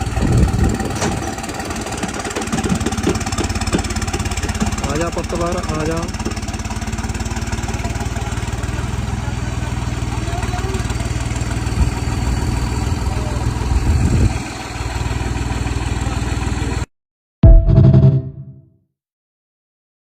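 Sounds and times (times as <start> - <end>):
diesel tractor engine running: 0.0 - 16.8
music: 17.4 - 18.7.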